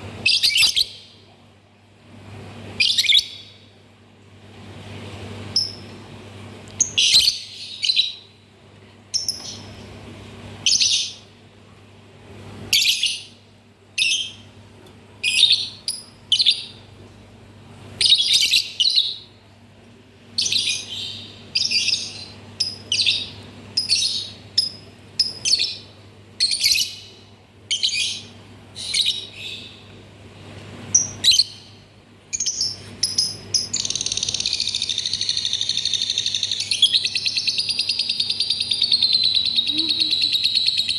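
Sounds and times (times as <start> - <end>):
faint low hum: 0.0 - 40.9
lovebird chirping: 0.2 - 1.1, 2.8 - 3.6, 6.8 - 8.2, 18.0 - 19.3, 20.4 - 29.8, 30.9 - 40.9.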